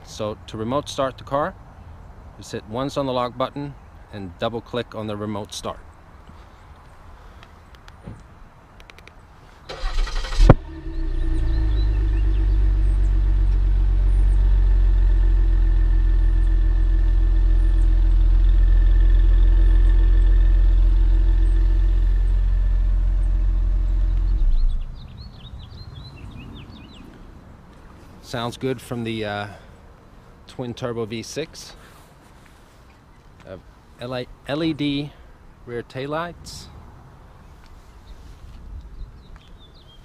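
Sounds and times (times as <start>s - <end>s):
car engine starting and idling: 9.7s - 26.9s.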